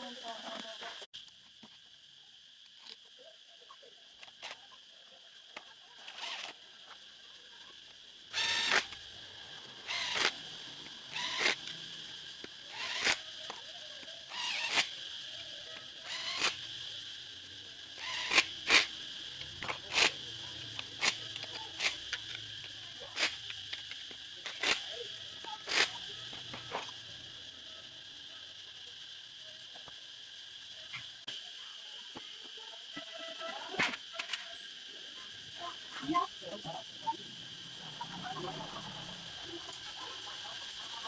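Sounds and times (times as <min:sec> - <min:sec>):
high insect-like chirring: 0:00.0 - 0:41.0
sharp clicks: 0:08.3 - 0:09.1, 0:09.9 - 0:10.4, 0:11.1 - 0:13.7, 0:14.3 - 0:15.0, 0:15.7 - 0:16.8, 0:18.0 - 0:27.0.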